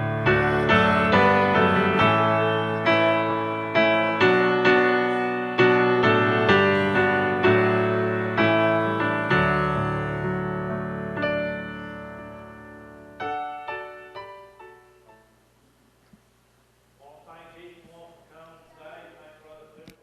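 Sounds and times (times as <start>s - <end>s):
slow gentle piano piece: 0.0s - 15.6s.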